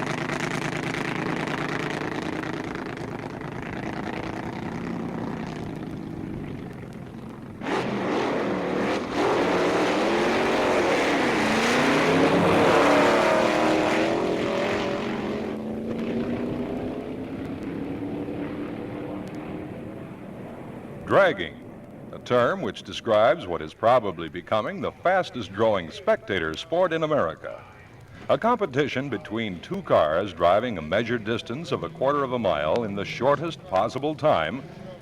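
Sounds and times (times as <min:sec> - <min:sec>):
loud engine blast: 0:00.0 - 0:22.2
drag racing car engines: 0:00.0 - 0:35.0.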